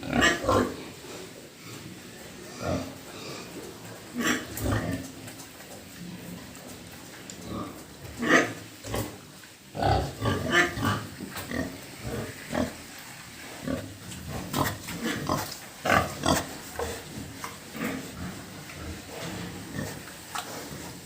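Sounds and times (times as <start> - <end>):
pigs grunting and squealing: 0.0 - 1.0, 2.5 - 5.2, 7.4 - 12.9, 13.5 - 21.0.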